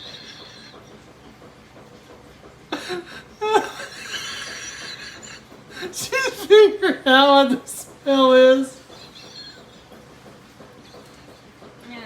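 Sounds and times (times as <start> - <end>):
person chuckling: 2.7 - 7.7.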